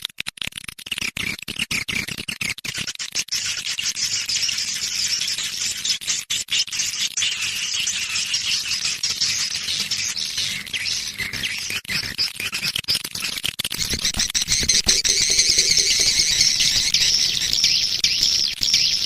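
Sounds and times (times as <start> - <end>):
swiftlets twittering and chirping: 2.4 - 19.0
sharp clicks: 13.4 - 17.7.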